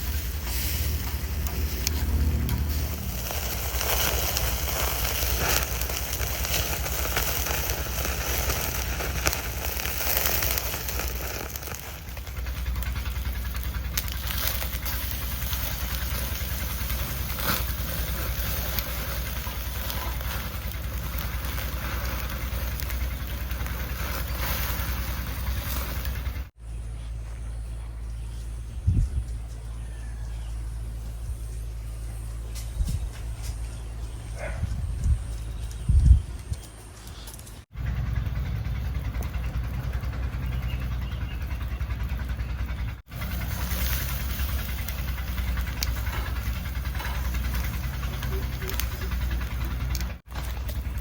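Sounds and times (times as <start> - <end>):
campfire crackling and popping: 0.0 - 26.5, 37.3 - 51.0
low rumble: 0.0 - 36.6, 37.7 - 51.0.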